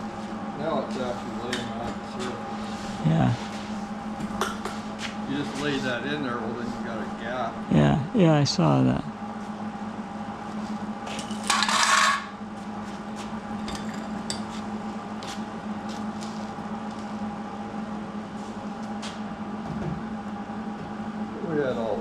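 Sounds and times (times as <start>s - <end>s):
steady hum: 0.0s - 22.0s
harsh metal scrape: 11.2s - 12.3s.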